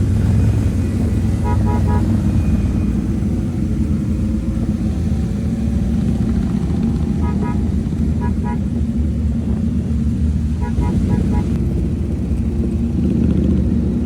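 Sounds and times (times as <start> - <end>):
motorcycle engine and road rumble: 0.0 - 14.0
horn beeps: 0.2 - 3.3, 7.0 - 8.7, 10.6 - 11.6.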